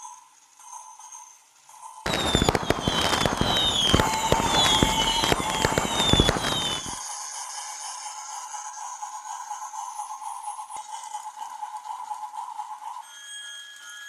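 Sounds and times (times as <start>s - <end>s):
crackling noise: 2.1s - 7.0s.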